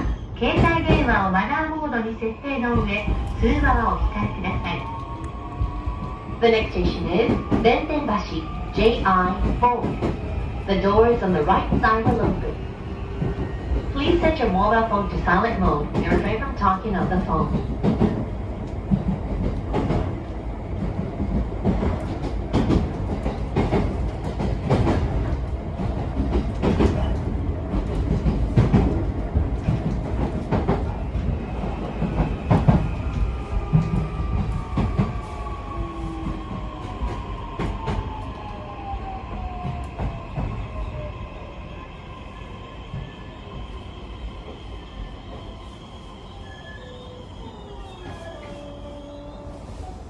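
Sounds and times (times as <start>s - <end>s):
train running rumble: 2.6s - 38.2s.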